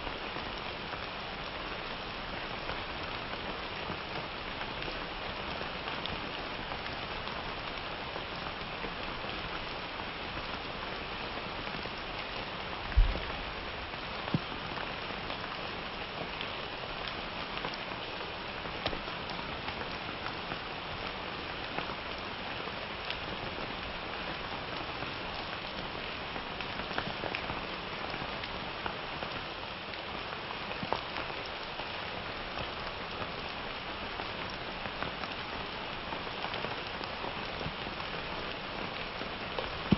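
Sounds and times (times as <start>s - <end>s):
steady rain: 0.0s - 39.9s
raindrops ticking on hard surface: 0.1s - 39.9s.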